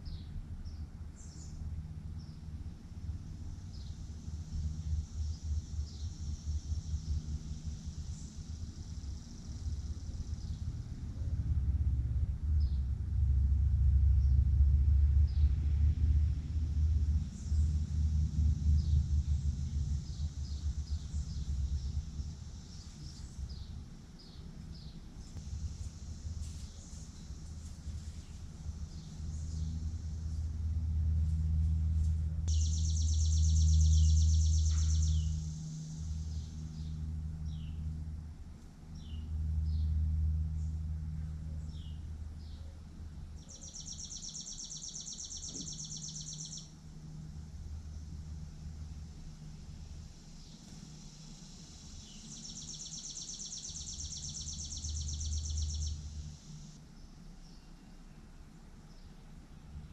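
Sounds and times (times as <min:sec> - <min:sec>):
low rumble: 0:00.0 - 0:43.4
songbird trilling: 0:32.5 - 0:35.5, 0:43.4 - 0:46.8, 0:52.0 - 0:56.3.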